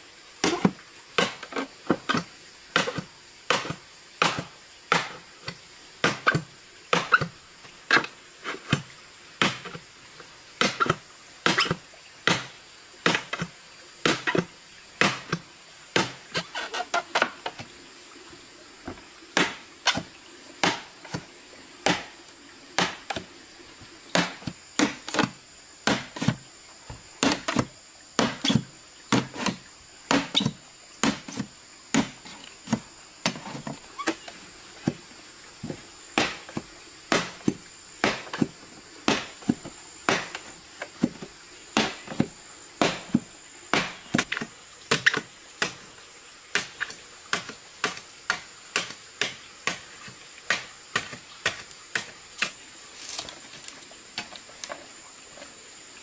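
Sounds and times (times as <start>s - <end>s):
blade chopping: 22.8s - 23.3s, 27.2s - 35.0s, 35.6s - 45.8s.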